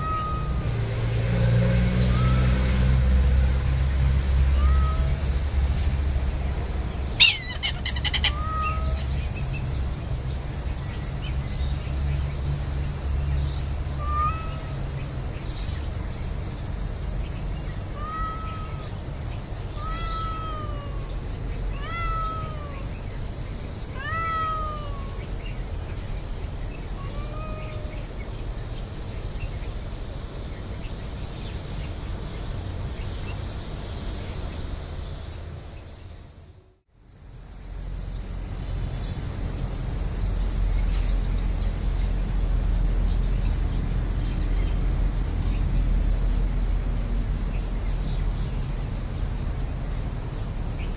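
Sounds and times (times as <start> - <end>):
cat meowing: 0.0 - 0.7, 2.1 - 2.5, 4.4 - 5.4, 7.2 - 9.3, 14.0 - 14.9, 17.9 - 19.0, 19.7 - 23.0, 23.8 - 25.2, 26.9 - 28.1.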